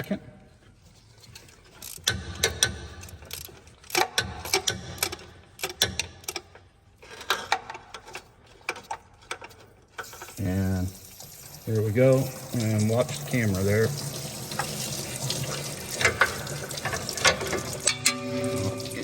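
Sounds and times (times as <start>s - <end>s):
ratchet clicking: 1.7s - 6.5s.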